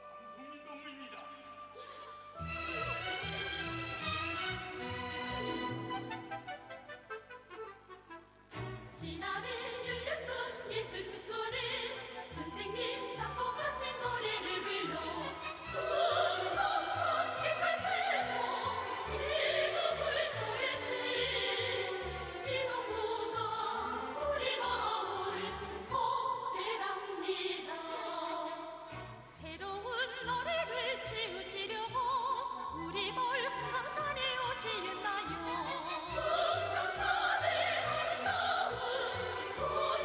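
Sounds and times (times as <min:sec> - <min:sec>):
orchestral accompaniment: 0:00.0 - 0:09.9, 0:11.6 - 0:26.1, 0:27.7 - 0:40.0
operatic singing with vibrato: 0:08.8 - 0:40.0.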